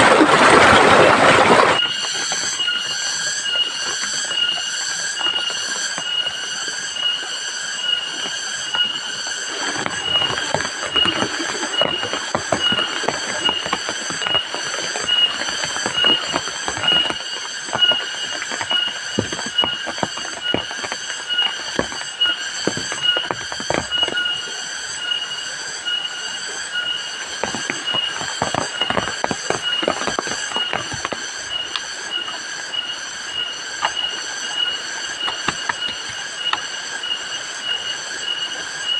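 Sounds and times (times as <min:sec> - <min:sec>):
insect chirping: 0:00.4 - 0:38.9
large raindrops striking: 0:09.5 - 0:24.5, 0:27.1 - 0:37.7.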